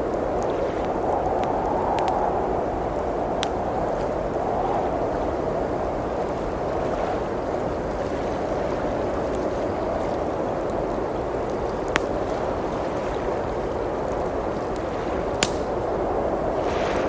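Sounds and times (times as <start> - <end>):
wood fire crackling: 0.0 - 7.9, 8.8 - 17.0
blizzard wind rushing: 0.0 - 17.0
sharp pop: 15.4 - 15.7.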